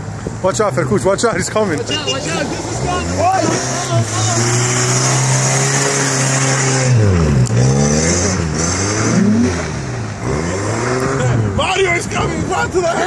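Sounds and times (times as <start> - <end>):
truck engine revving: 0.6 - 13.0.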